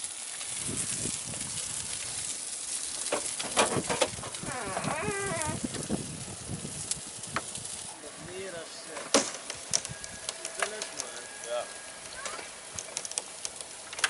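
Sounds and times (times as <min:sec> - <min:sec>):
burning car crackling and popping: 0:00.0 - 0:14.0
hiss of flames: 0:00.0 - 0:14.0.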